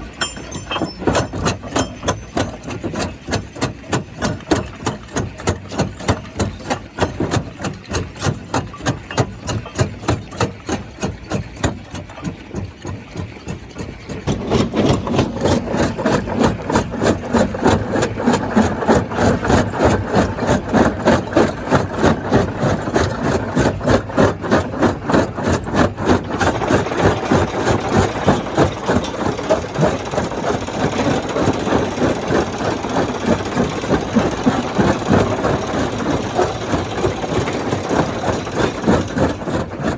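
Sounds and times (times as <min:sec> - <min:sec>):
stone crusher rhythmic knocking: 0:00.0 - 0:39.9.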